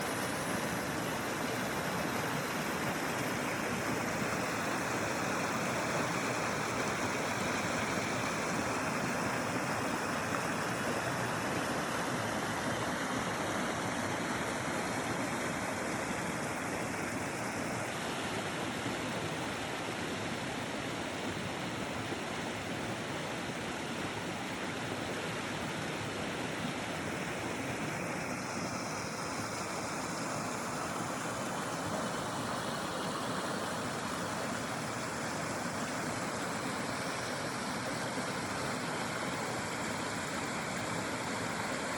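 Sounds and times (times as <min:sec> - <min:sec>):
river water rushing: 0:00.0 - 0:41.9.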